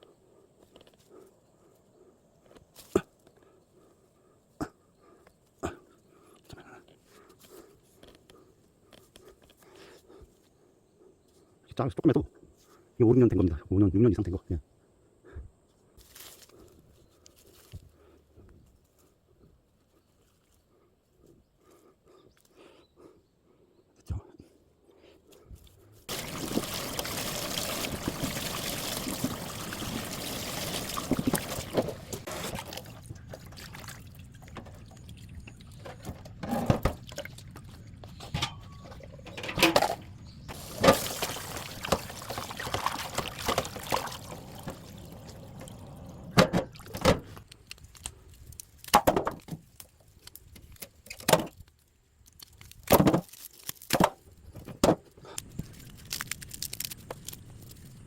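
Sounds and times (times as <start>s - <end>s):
water pouring: 26.1s - 35.9s, 38.9s - 47.0s
splashes and knocks: 26.1s - 47.3s.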